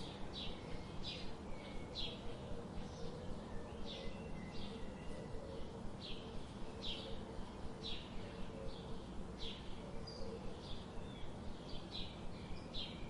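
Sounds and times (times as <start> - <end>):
birds chirping: 0.0 - 13.0
steady low background hiss: 0.0 - 13.0.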